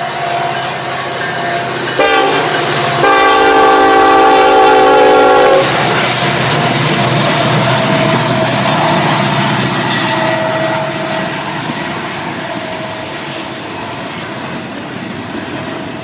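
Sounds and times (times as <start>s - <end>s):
locomotive engine rumble: 0.0s - 16.0s
train passing: 0.0s - 16.0s
locomotive air horn blasts: 1.6s - 6.2s.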